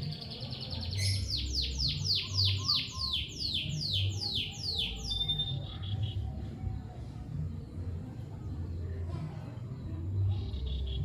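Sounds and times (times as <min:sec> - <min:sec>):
bird shrill chirps: 0:00.1 - 0:06.2.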